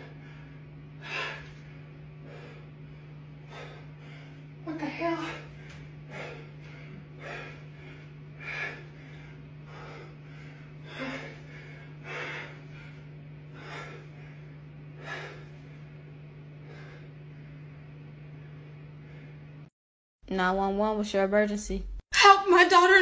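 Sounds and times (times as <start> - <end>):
person taking sharp breaths: 0.0 - 4.6, 5.2 - 15.8, 16.6 - 17.4
steady low hum: 0.0 - 22.1.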